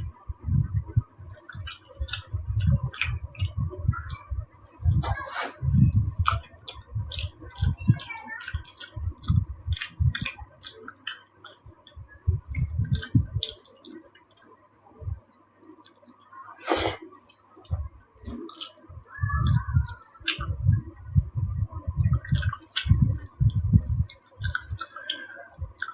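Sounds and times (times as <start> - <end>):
soft low jaw thuds: 0.0 - 10.8, 11.6 - 13.6, 17.7 - 24.9
person chewing with mouth clicks: 1.3 - 14.6, 15.8 - 17.1, 17.7 - 18.8, 19.4 - 20.6, 21.8 - 25.9.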